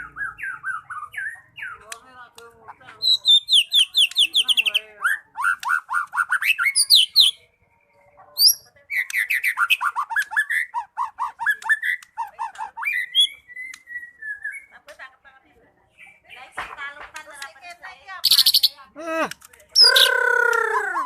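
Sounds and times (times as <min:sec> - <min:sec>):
bird singing: 0:00.0 - 0:14.8, 0:15.9 - 0:21.0.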